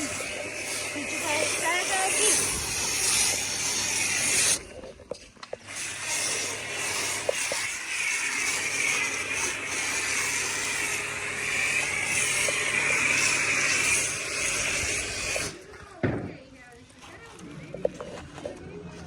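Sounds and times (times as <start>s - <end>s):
pressure washer spraying water: 0.0s - 4.7s, 5.6s - 15.6s.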